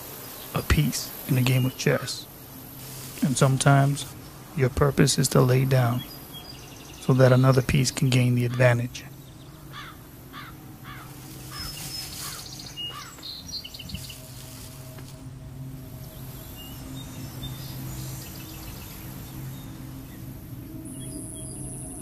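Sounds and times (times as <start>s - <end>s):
low steady hum: 0.0s - 22.0s
bird chirping: 3.3s - 15.0s, 15.6s - 22.0s
higher bird calls: 5.8s - 15.0s.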